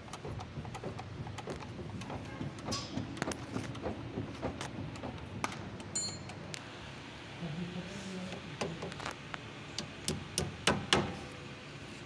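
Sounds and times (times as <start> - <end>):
steering clicks and knocks: 0.0 - 6.6.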